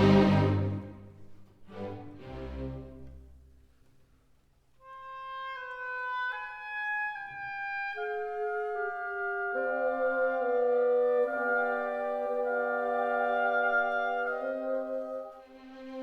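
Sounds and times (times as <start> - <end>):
woodwind melody: 0.0 - 1.2, 4.8 - 16.0
orchestral music: 0.0 - 3.2.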